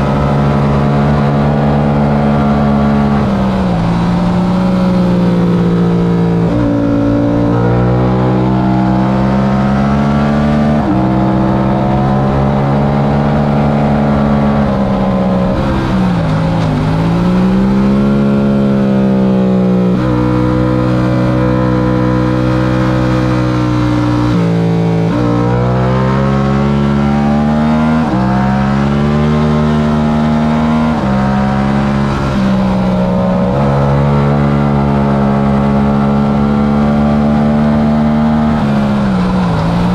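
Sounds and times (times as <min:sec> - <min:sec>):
motorcycle engine revving with upshifts: 0:00.0 - 0:39.9.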